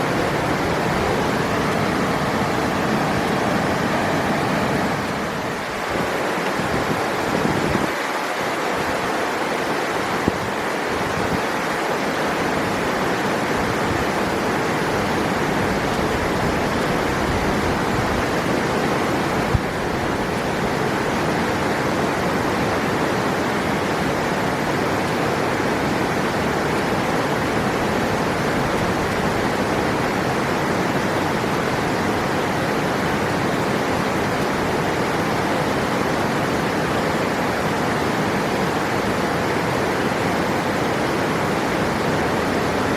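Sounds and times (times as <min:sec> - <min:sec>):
river water rushing: 0:00.0 - 0:42.9.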